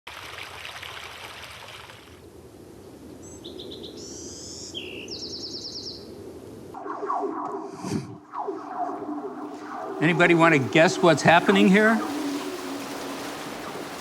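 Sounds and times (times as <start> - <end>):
songbird trilling: 3.2 - 6.1
crackling hiss: 6.4 - 14.0.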